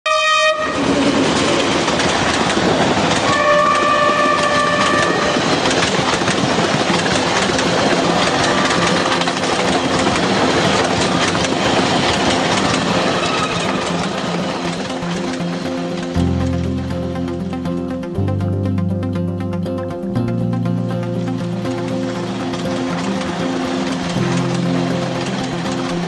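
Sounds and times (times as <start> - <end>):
train horn: 0.1 - 0.9, 3.2 - 6.0, 8.2 - 9.4, 12.8 - 14.6
train coaches on the track: 0.1 - 26.0.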